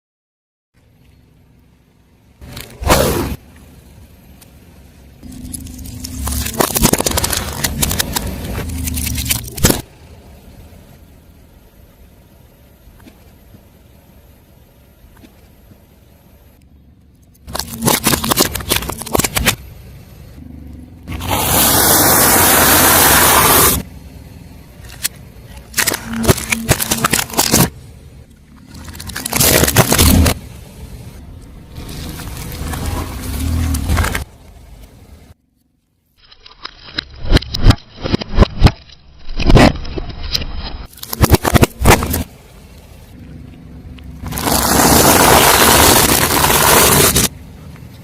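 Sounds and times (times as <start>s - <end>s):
low car engine hum: 0.8s - 36.2s, 37.2s - 48.0s
tyre crushing crunchy objects: 5.2s - 9.9s, 17.5s - 19.6s, 24.8s - 27.8s, 28.6s - 30.5s, 31.7s - 34.4s, 36.5s - 42.3s, 44.2s - 47.3s.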